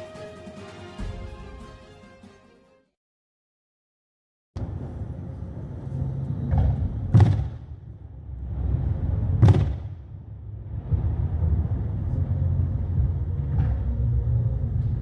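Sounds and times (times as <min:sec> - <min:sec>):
low rumble: 0:04.6 - 0:15.0
loud sharp bangs: 0:06.6 - 0:07.8, 0:09.4 - 0:10.1.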